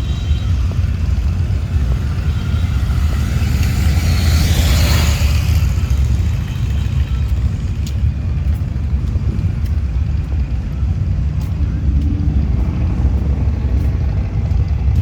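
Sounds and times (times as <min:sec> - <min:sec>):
motorcycle engines rumbling: 0:00.0 - 0:15.0.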